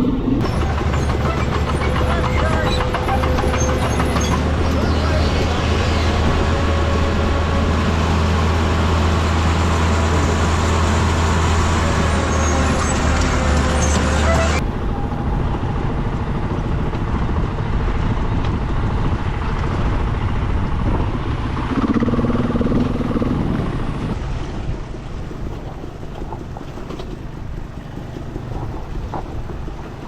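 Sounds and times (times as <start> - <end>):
wind on microphone: 0.0 - 30.0
dirt bike engine running: 0.4 - 14.6, 15.9 - 24.1.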